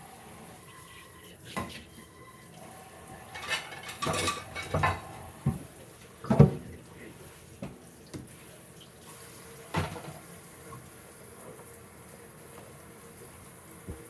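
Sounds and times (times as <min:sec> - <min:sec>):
dishes and utensils clattering: 0:03.2 - 0:05.6.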